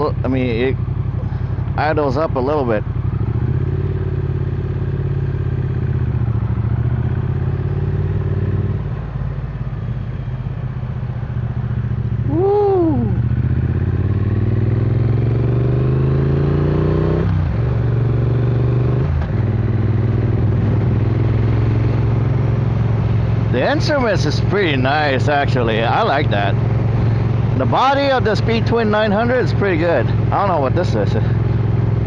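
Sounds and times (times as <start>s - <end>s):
motorcycle engine accelerating: 0.0s - 32.0s
person shouting: 12.2s - 13.3s.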